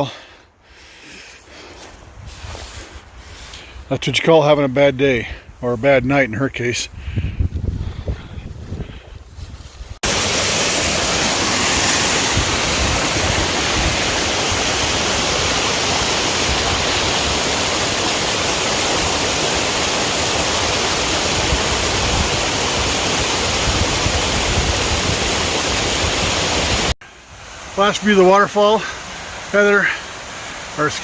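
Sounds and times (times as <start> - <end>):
waterfall rushing: 10.0 - 31.0.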